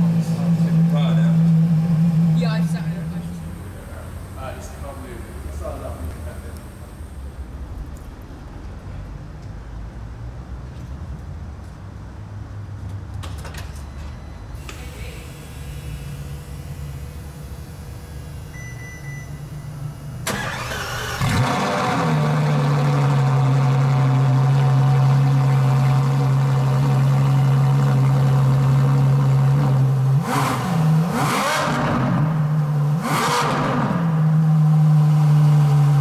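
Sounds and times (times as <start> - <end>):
car engine starting and idling: 0.0 - 9.7, 14.8 - 36.0
engine revving: 20.3 - 36.0.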